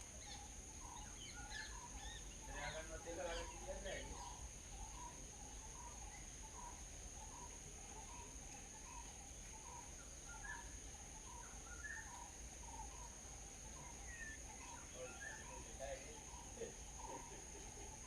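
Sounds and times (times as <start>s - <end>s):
birds chirping faintly: 0.0s - 18.0s
high insect drone: 0.0s - 18.0s.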